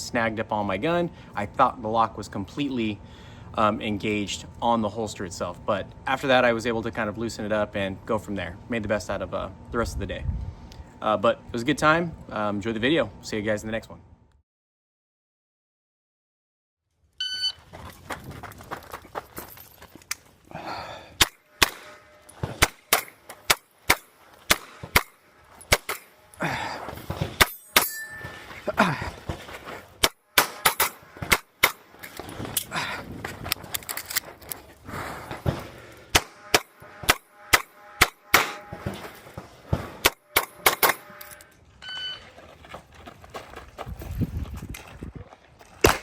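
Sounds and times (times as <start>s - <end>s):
pistol shots: 21.2s - 26.2s, 30.0s - 32.1s, 36.1s - 39.0s, 40.0s - 41.1s, 45.8s - 46.0s
metallic ring: 27.4s - 28.8s.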